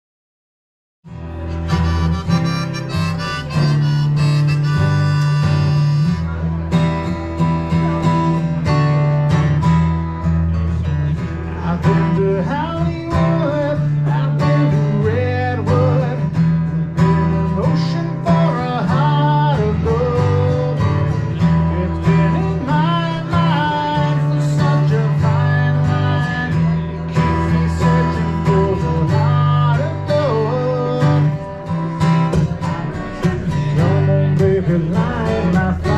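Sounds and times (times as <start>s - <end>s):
acoustic guitar: 1.0s - 35.9s
steady bass: 1.1s - 35.9s
harmonica melody: 1.3s - 6.6s.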